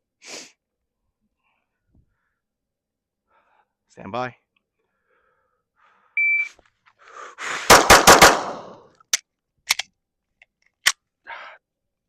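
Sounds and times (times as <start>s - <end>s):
shot timer beep: 6.2s - 6.5s
rapid pistol shots: 7.6s - 8.8s.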